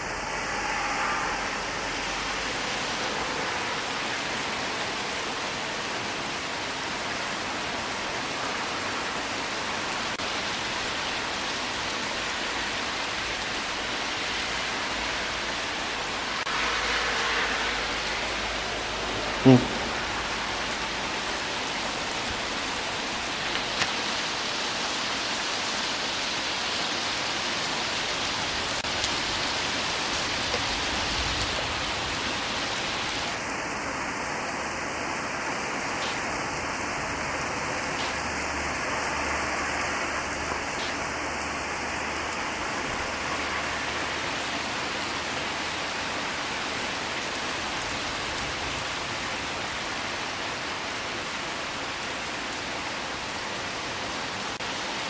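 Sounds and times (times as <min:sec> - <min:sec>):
heavy rain on grass and trees: 0:00.0 - 0:55.0.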